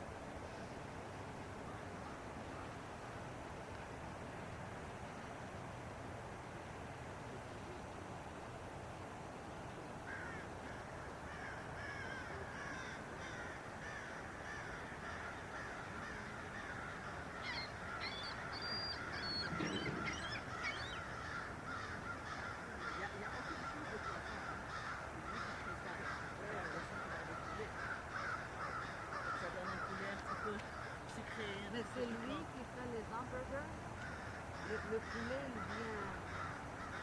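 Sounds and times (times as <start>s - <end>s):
birds chirping and calling: 11.4s - 32.4s, 34.0s - 37.0s.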